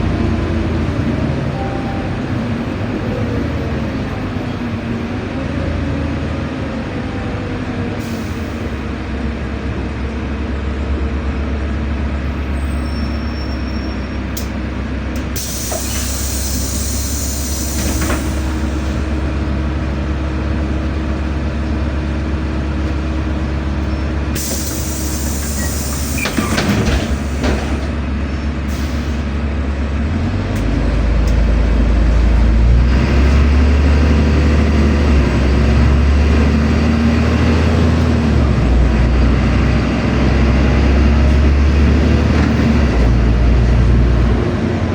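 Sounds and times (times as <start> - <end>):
bus engine running: 0.0 - 44.9
compressed-air hiss: 15.4 - 18.0, 24.4 - 26.3.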